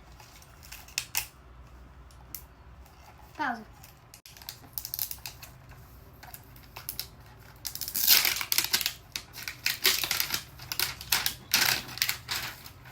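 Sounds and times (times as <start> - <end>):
plastic packaging crinkling: 6.2 - 12.9.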